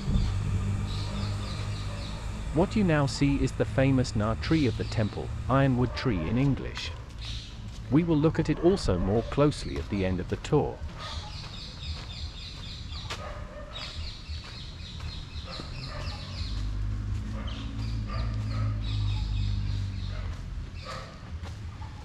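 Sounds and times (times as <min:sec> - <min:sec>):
low steady rumble: 0:00.0 - 0:10.9
birds chirping: 0:00.0 - 0:22.0.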